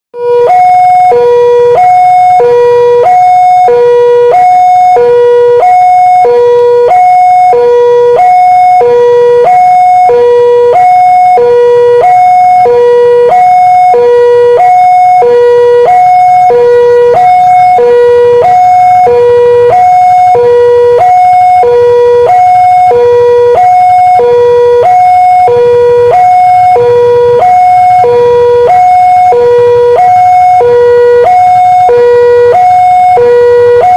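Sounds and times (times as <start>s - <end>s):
two-tone crossing alarm: 0.2s - 33.9s.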